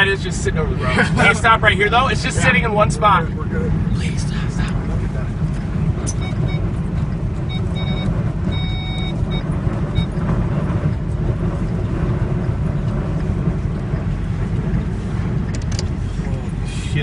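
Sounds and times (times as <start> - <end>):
strong winds buffeting vehicle: 0.0 - 17.0
short high beeps: 6.0 - 6.7, 7.5 - 10.1.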